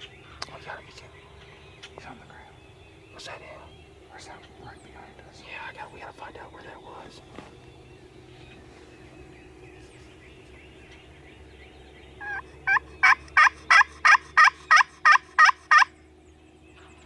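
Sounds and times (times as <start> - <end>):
faint distant bird calls: 0.0 - 17.0
turkey yelps: 12.2 - 15.9.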